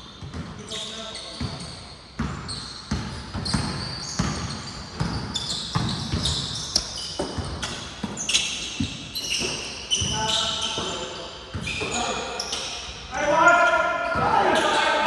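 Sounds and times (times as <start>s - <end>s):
basketball bouncing: 1.4s - 8.2s.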